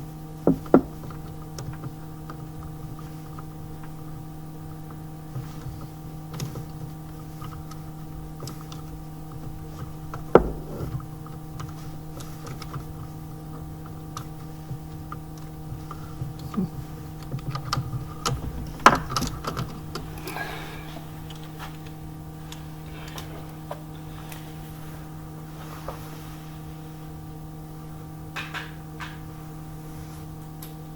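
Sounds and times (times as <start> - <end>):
steady electrical hum: 0.0 - 30.9
hand tools clicking and knocking: 13.6 - 22.0.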